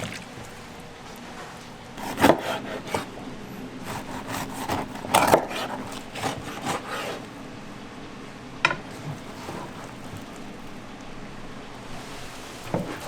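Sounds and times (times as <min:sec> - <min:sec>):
scraping on wooden cutting board: 0:01.3 - 0:03.2, 0:03.8 - 0:07.4, 0:08.9 - 0:10.7, 0:12.0 - 0:13.0.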